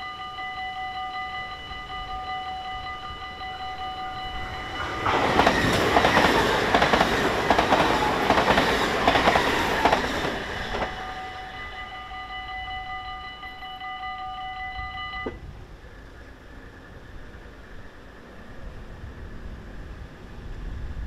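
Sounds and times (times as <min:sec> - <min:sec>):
level-crossing warning bells: 0:00.0 - 0:15.4
train wheels clacking over rails: 0:04.5 - 0:11.5.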